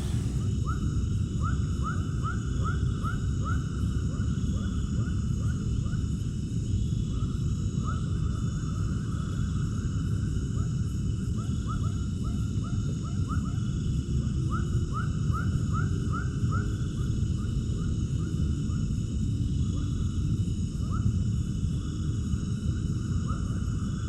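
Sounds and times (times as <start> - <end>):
steady low rumble: 0.0 - 0.6.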